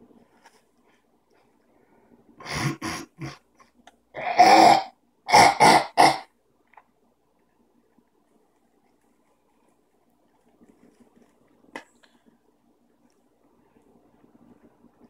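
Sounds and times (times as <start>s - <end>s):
harsh coughing: 4.2s - 6.3s.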